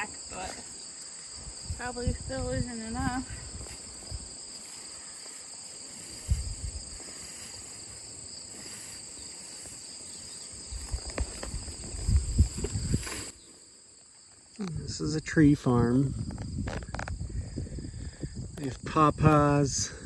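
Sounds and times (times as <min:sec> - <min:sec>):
insects chirring: 0:00.0 - 0:20.0
low thumps and knocks: 0:10.7 - 0:13.2.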